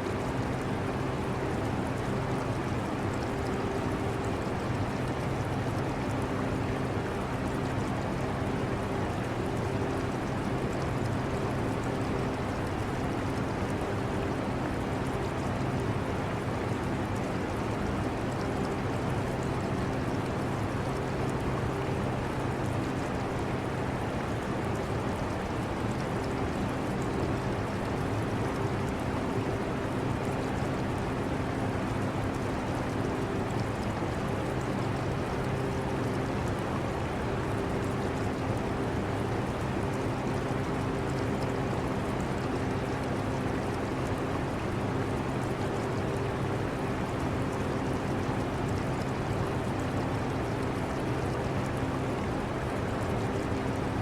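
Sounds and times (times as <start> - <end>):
aquarium water bubbling: 0.2 - 54.0.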